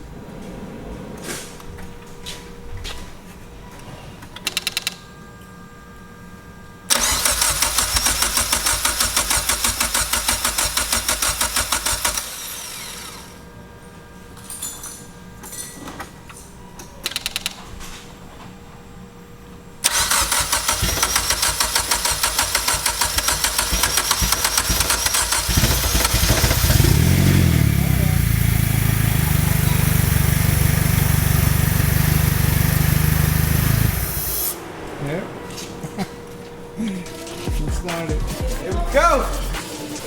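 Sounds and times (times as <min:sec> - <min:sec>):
car engine cranking on starter: 0:06.9 - 0:13.4, 0:19.8 - 0:34.6.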